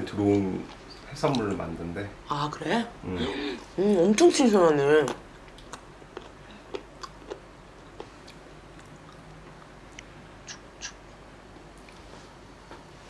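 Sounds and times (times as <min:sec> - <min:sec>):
low room hum: 0:00.0 - 0:13.0
person quietly chewing: 0:05.0 - 0:11.0, 0:11.8 - 0:12.2
soft mouth clicks and smacks: 0:08.0 - 0:11.0.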